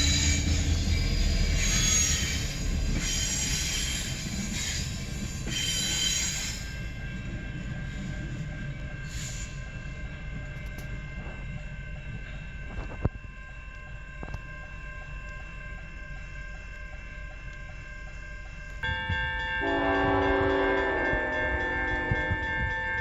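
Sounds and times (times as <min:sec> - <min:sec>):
train rumbling past: 0:00.0 - 0:23.0
ringing chime-like tones: 0:18.8 - 0:23.0.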